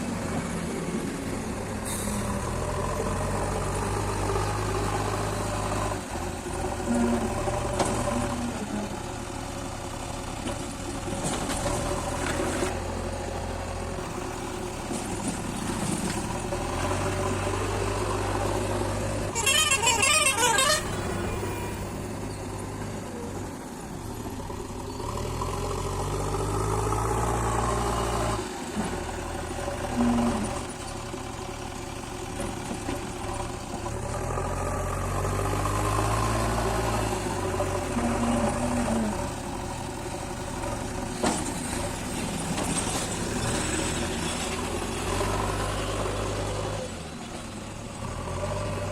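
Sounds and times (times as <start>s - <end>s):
diesel engine revving: 0.0s - 48.9s
vehicle horn: 6.9s - 7.4s, 19.3s - 21.9s.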